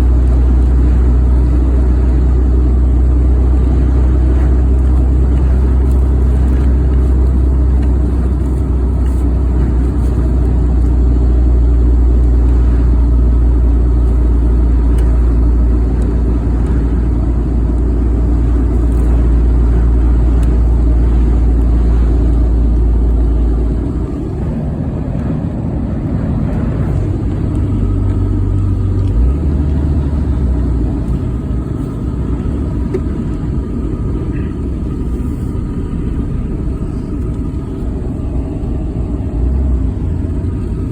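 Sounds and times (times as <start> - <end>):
heavy low rumble: 0.0 - 40.9
road noise inside vehicle: 0.0 - 40.9.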